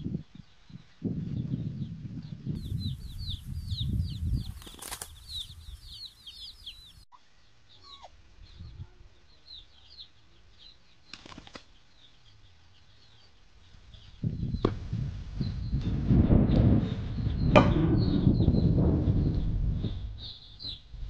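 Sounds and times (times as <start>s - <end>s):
hens wing-flapping and scuffling: 2.9s - 6.7s, 11.1s - 11.8s.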